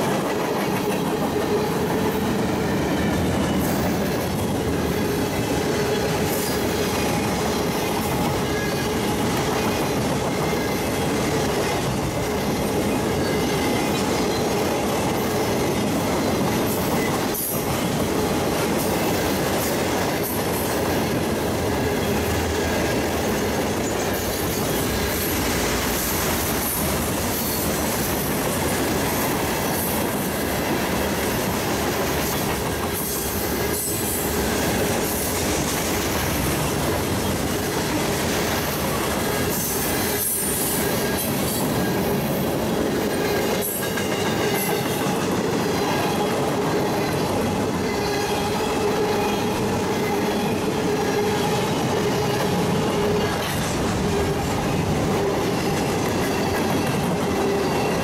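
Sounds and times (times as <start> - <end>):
train cars rumbling and rattling: 0.0 - 58.0.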